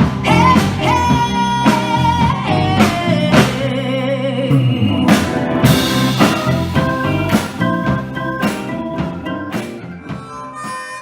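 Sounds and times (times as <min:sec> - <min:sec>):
soul-blues band playing: 0:00.0 - 0:11.0
held vocal note with vibrato: 0:03.9 - 0:05.5.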